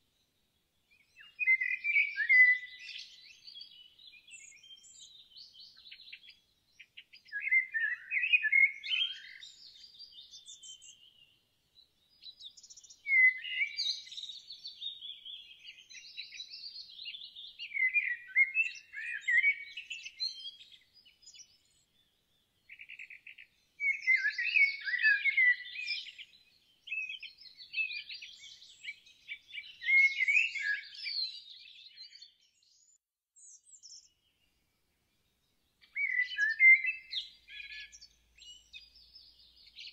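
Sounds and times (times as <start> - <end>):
songbird warbling and trilling: 22.6 - 32.3, 35.8 - 39.9.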